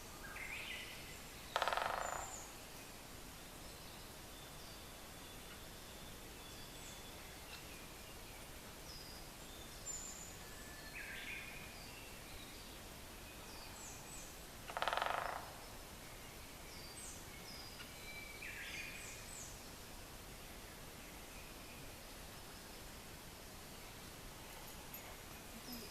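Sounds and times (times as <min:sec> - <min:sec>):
woodpecker drumming on wood: 0:01.5 - 0:02.5, 0:14.7 - 0:15.6.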